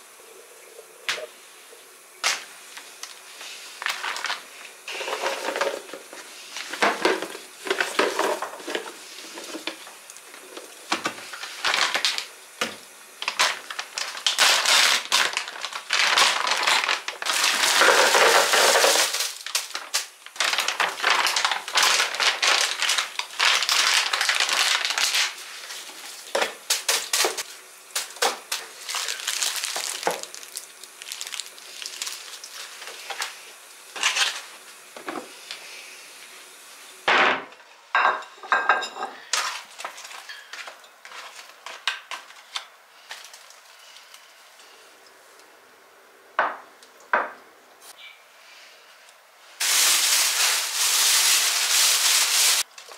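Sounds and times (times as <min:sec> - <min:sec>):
packaging crinkling and rustling: 0:02.2 - 0:34.6, 0:39.4 - 0:44.2, 0:49.6 - 0:52.9.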